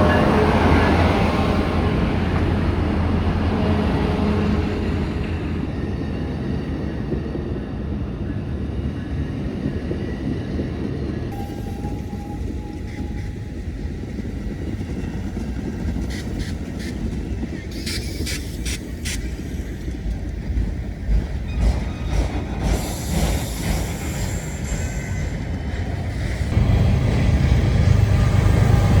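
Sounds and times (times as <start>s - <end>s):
train rumbling past: 0.0s - 29.0s.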